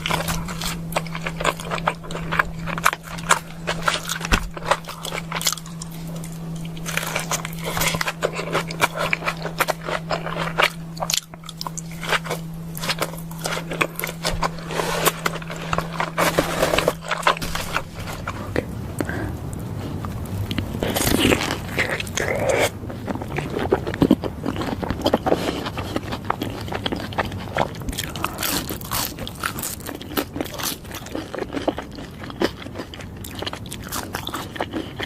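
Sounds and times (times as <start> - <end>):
low hum: 0.0 - 31.1
crunchy chewing: 0.0 - 35.0.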